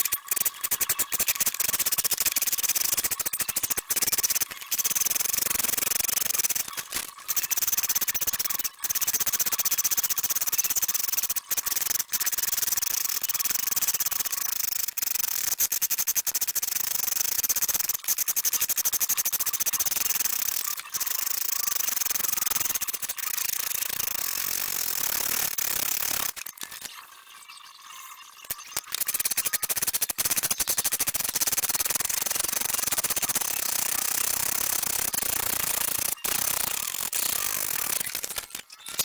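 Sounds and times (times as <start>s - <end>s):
rotary tool grinding steel: 31.7s - 39.0s.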